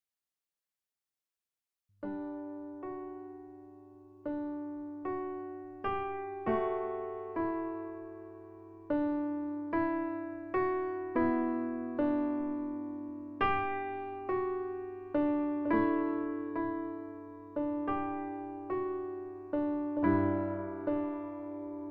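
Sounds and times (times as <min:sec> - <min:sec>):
slow electric piano chords: 0:02.0 - 0:21.9.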